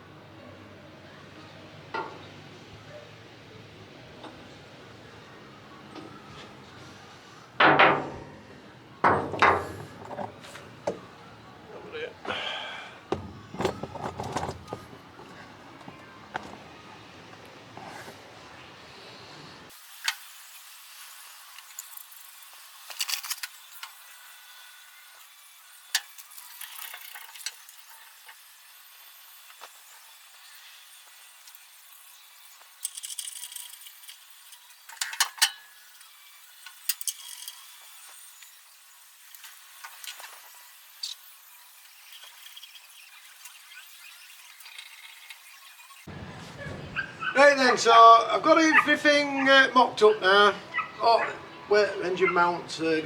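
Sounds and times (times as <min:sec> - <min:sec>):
tools and metal parts clinking: 0:13.1 - 0:15.4, 0:22.9 - 0:24.0, 0:32.8 - 0:36.0, 0:36.6 - 0:37.8.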